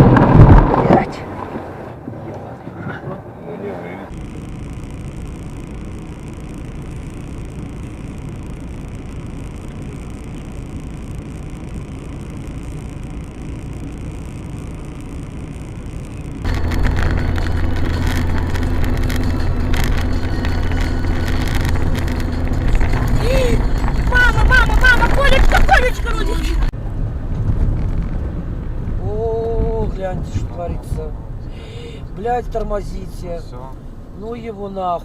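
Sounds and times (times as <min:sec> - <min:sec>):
deep engine drone: 0:00.0 - 0:32.2
car engine and road noise: 0:00.0 - 0:35.0
small clicks and rattles: 0:13.6 - 0:25.8.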